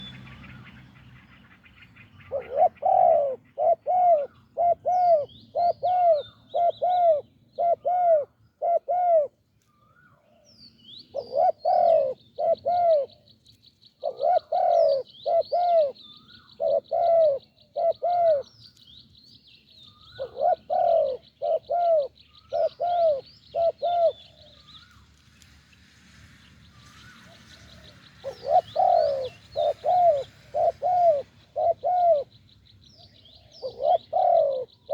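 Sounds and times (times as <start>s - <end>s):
small birds chirping: 0.0s - 8.9s, 9.6s - 34.9s
doves cooing: 2.3s - 9.3s, 11.2s - 13.1s, 14.0s - 16.0s, 16.6s - 18.5s, 20.1s - 24.4s, 27.2s - 32.4s, 33.4s - 34.9s.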